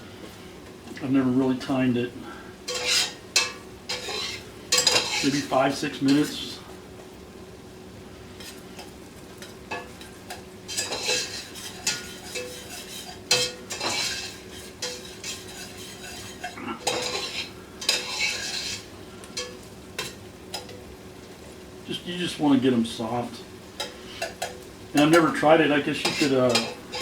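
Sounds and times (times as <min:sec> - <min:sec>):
soft sizzle: 0:00.0 - 0:27.0
utensil scraping a pot: 0:02.7 - 0:06.4, 0:09.8 - 0:20.7, 0:25.9 - 0:27.0.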